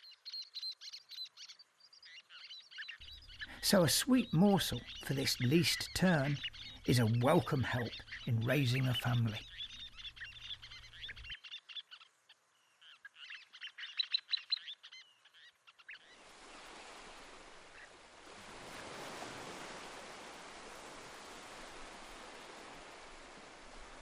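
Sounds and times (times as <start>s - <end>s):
terns chattering: 3.0s - 11.2s
surf rushing: 16.2s - 24.0s.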